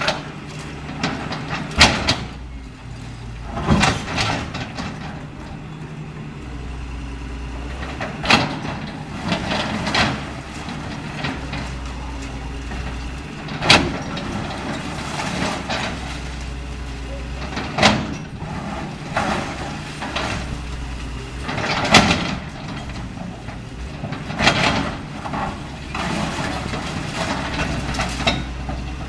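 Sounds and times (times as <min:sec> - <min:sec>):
excavator diesel engine drone: 0:00.0 - 0:29.0
building material crashing: 0:07.6 - 0:29.0.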